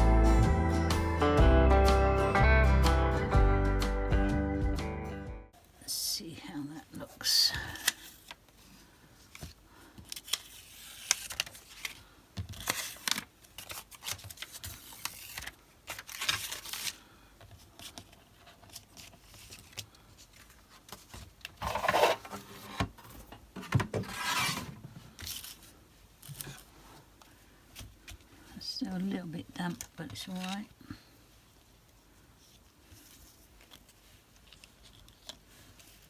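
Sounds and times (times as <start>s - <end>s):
paper rubbing and rustling: 9.3s - 22.8s, 24.0s - 26.7s, 32.4s - 36.0s.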